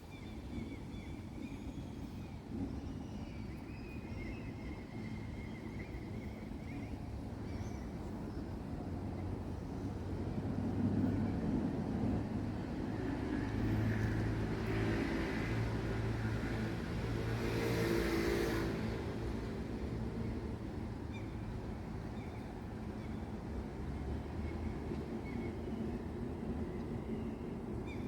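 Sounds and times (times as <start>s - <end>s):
vehicle passing: 13.4s - 19.7s.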